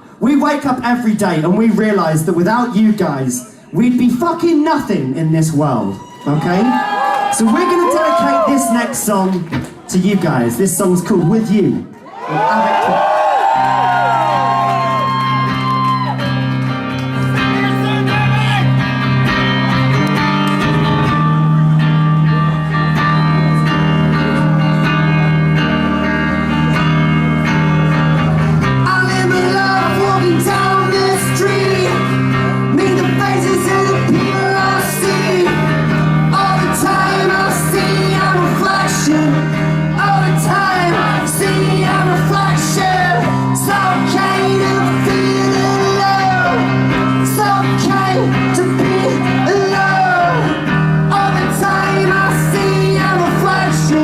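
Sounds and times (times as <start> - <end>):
electric guitar chords: 13.4 - 54.0
person singing: 28.8 - 54.0.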